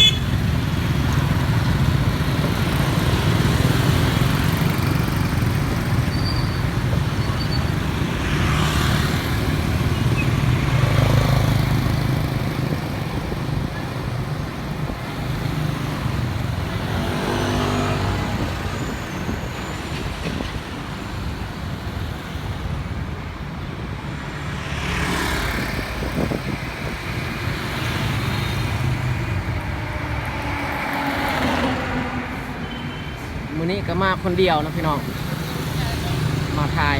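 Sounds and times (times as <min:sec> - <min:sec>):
vehicle engines rumbling: 0:00.0 - 0:36.9
vehicles passing close by: 0:00.0 - 0:36.9.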